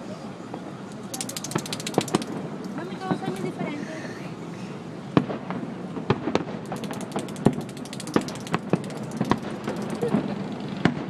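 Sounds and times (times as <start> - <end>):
fireworks crackling: 0.9 - 3.6, 5.2 - 11.0.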